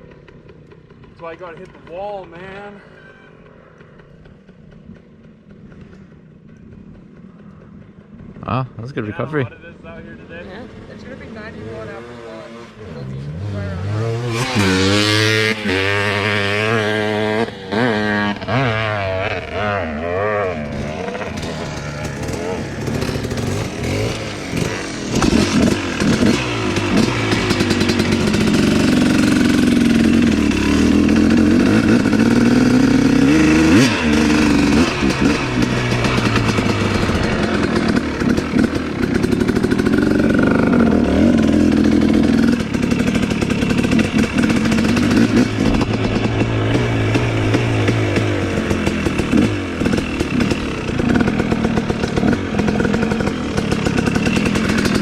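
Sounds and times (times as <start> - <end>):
dirt bike engine revving: 10.4 - 55.0.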